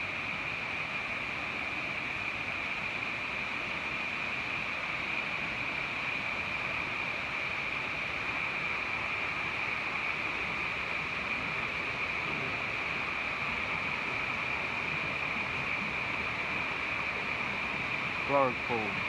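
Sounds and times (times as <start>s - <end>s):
water cascading down waterfall: 0.0s - 19.0s.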